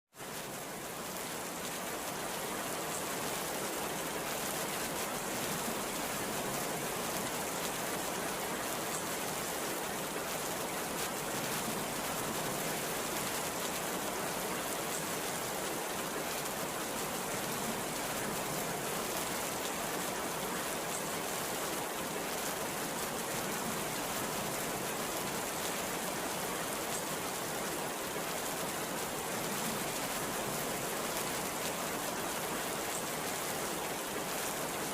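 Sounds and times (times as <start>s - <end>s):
heavy rain falling: 0.2s - 34.9s.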